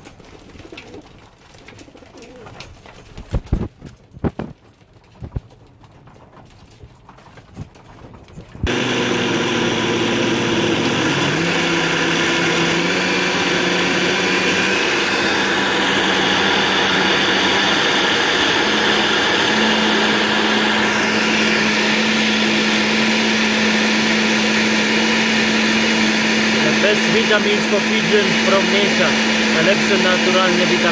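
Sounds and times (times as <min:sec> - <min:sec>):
small motor-driven machine humming: 0:26.6 - 0:30.9.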